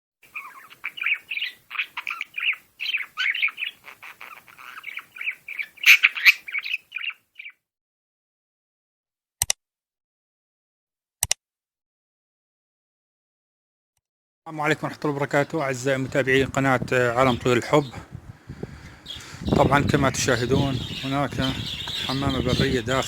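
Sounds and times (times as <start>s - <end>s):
small birds chirping and squawking: 0.2s - 7.6s, 14.5s - 23.0s
sharp clicks: 11.2s - 11.4s.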